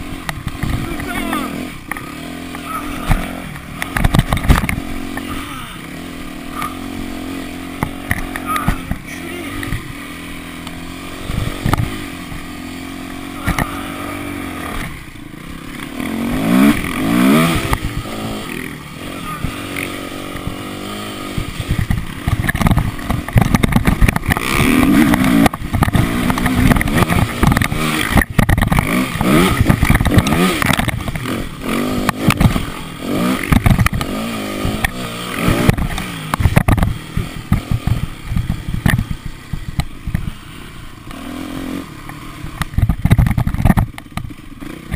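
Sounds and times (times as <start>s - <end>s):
motocross bike engine revving: 0.0s - 44.9s
knocks and clatter: 3.1s - 5.3s, 21.7s - 31.2s, 33.4s - 34.1s, 34.7s - 40.3s, 42.6s - 44.3s.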